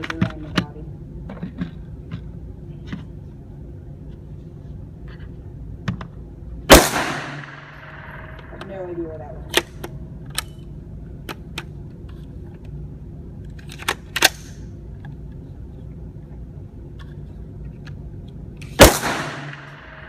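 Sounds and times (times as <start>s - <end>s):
steady low hum: 0.0s - 20.0s
gunshots: 6.7s - 8.8s, 18.8s - 20.0s.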